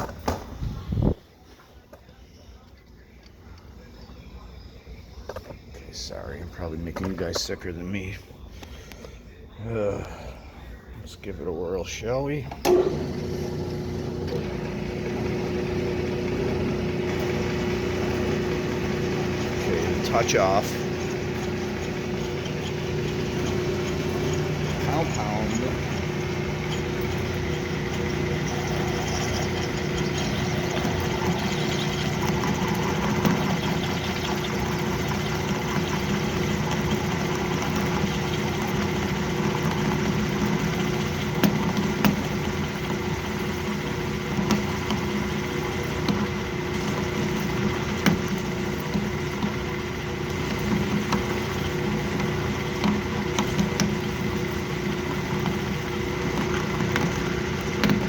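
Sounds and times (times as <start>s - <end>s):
metal lathe motor hum: 11.8s - 58.0s.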